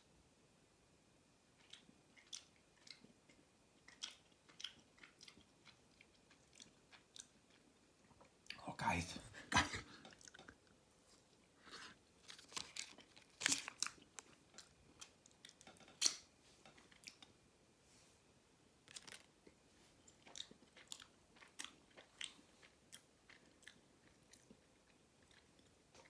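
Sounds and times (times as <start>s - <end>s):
person chewing: 1.6s - 8.6s, 9.9s - 17.3s, 18.9s - 26.0s
small crunches: 12.2s - 16.2s, 18.9s - 19.3s.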